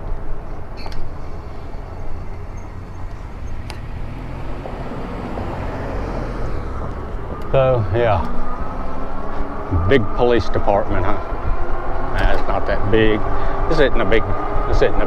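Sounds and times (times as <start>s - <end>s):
tyre and road noise: 0.0s - 15.0s
faint clicks: 3.1s - 3.9s
wind on microphone: 4.8s - 15.0s.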